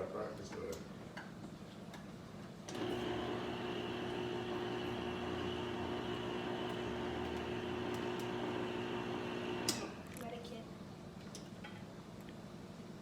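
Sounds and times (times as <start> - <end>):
kitchen appliance humming: 2.7 - 10.0.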